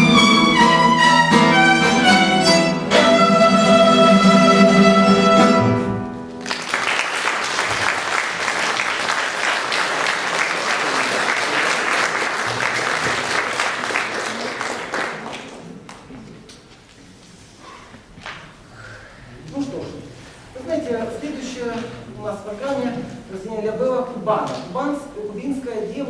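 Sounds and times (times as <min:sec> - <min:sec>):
violin and guitar note: 0:00.0 - 0:06.3
audience applause: 0:06.4 - 0:16.1.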